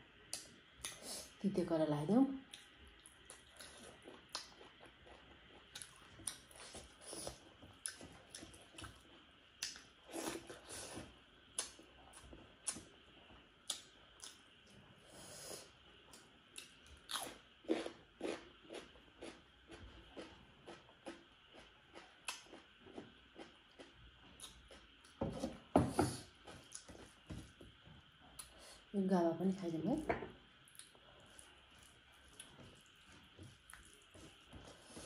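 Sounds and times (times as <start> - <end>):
person chewing crunchy food: 2.5 - 10.9, 16.6 - 25.2, 26.1 - 28.6, 30.6 - 35.0.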